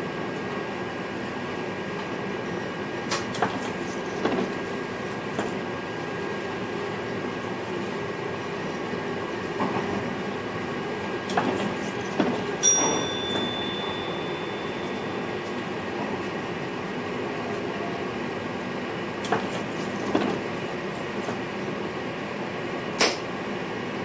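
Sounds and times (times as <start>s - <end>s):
electric train rumble: 0.0s - 24.0s
ringing chime: 12.6s - 15.4s.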